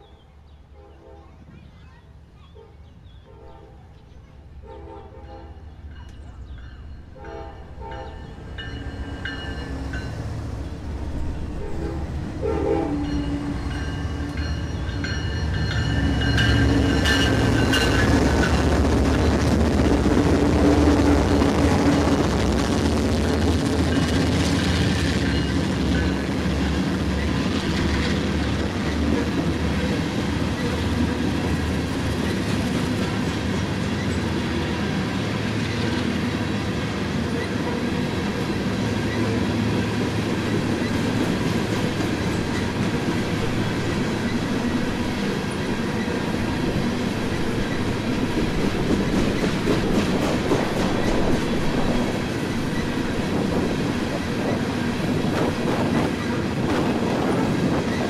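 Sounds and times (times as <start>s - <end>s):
train wheels clattering over rails: 13.0s - 58.0s.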